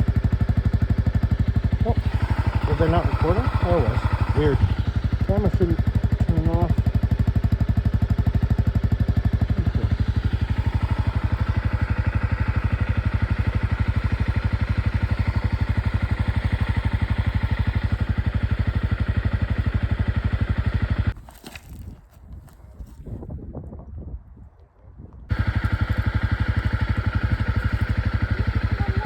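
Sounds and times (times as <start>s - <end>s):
atv engine running: 0.0s - 23.0s, 25.3s - 29.0s.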